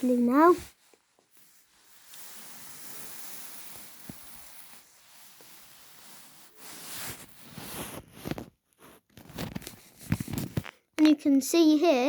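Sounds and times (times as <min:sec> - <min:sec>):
toy cars rubbing and rustling: 0:00.0 - 0:10.7
toy car scraping: 0:01.4 - 0:08.1.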